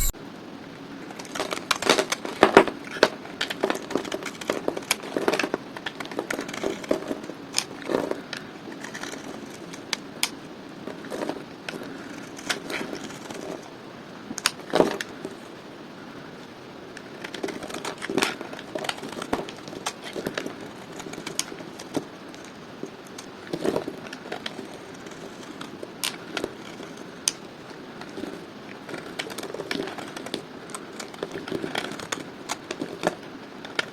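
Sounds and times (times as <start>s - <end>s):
bar soap being cut crackling: 1.2s - 10.4s, 17.0s - 28.2s, 28.8s - 33.9s.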